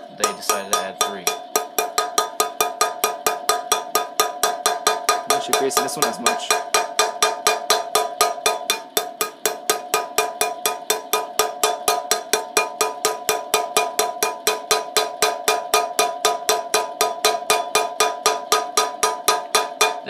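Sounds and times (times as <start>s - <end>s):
hammer blows on metal: 0.0s - 20.0s.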